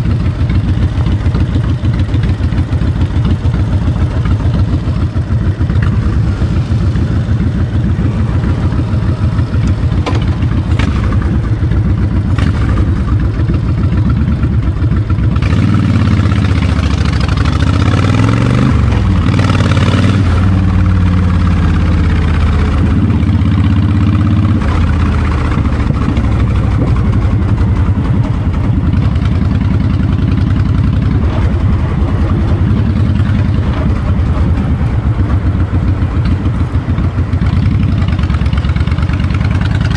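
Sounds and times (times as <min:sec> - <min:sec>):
motorcycle engine running: 0:00.0 - 0:39.9
wind buffeting microphone: 0:22.4 - 0:39.9.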